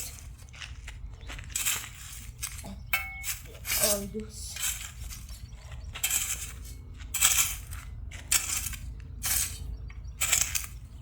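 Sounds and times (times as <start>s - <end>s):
gravelly soil rattling: 0.0s - 11.0s.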